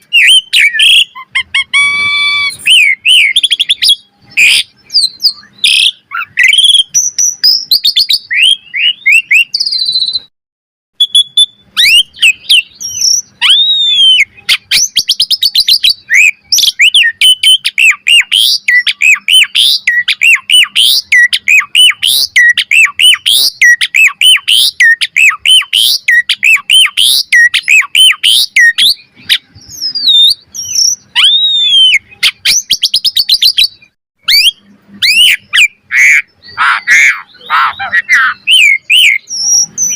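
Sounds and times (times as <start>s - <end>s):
starling singing: 0.0s - 10.3s, 11.0s - 39.9s.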